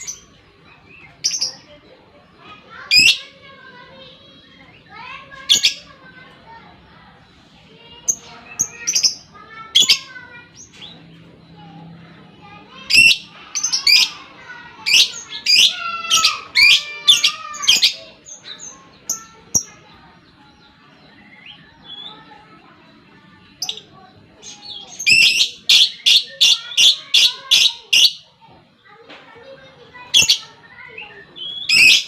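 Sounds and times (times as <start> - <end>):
lovebird chattering song: 23.6 - 28.3, 30.0 - 32.0.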